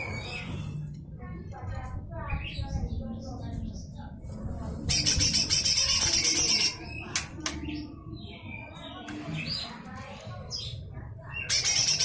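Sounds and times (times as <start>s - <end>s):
bird harsh rattle call: 4.9s - 6.8s, 11.4s - 12.0s
bird chirps and clicks: 4.9s - 8.0s.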